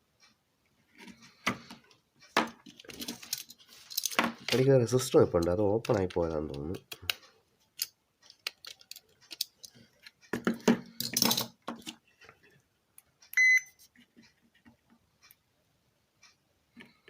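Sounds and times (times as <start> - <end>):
rustling handling noise: 0.8 - 12.6
multimeter beep: 13.3 - 13.8.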